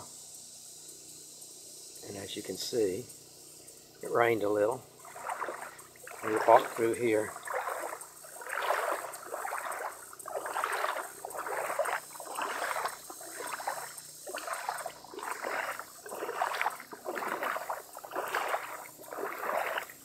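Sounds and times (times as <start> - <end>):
footsteps splashing in water: 5.0 - 20.0.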